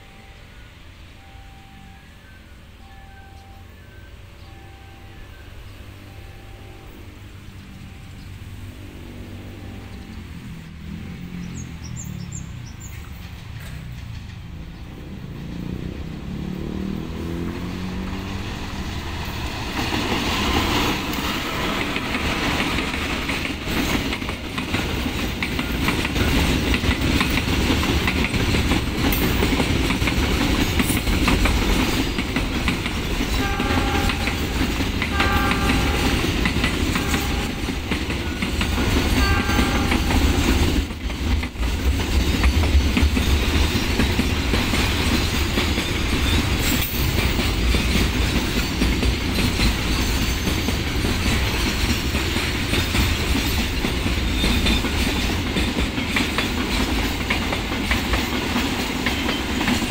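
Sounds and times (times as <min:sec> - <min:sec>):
train horn blasts: 0:00.0 - 0:10.1, 0:33.3 - 0:38.0, 0:38.8 - 0:40.6
diesel locomotive engine: 0:00.0 - 0:59.9
flatcars rumbling and clacking: 0:10.0 - 0:16.5, 0:17.6 - 0:59.9.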